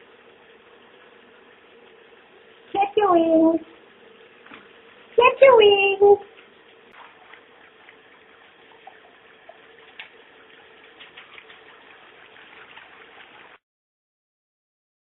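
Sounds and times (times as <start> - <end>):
faint splashes and clicks: 6.3 - 13.6
water spraying: 6.6 - 13.6.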